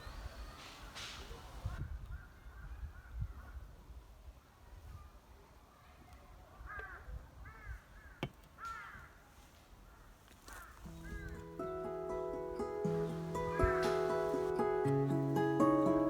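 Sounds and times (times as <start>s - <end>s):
bird calling: 0.0s - 1.8s, 10.5s - 12.1s, 12.8s - 14.9s
background music: 10.9s - 16.0s.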